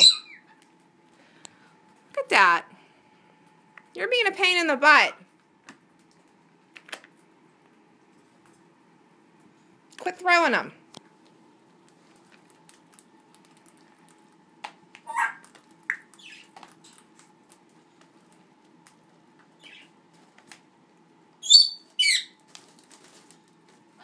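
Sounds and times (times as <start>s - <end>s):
parrot squawks: 0.0s - 0.6s, 15.0s - 16.5s, 21.4s - 22.4s
parrot whistle-like calls: 0.0s - 0.6s, 15.0s - 16.5s, 21.4s - 22.4s.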